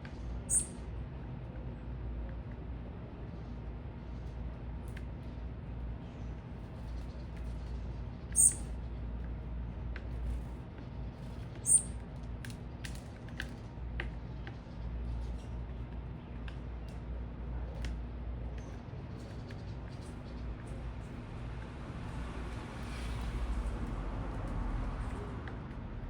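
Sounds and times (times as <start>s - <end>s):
low city hum: 0.0s - 26.0s
very high bird chirps: 0.4s - 0.8s, 8.3s - 8.7s, 11.6s - 12.0s.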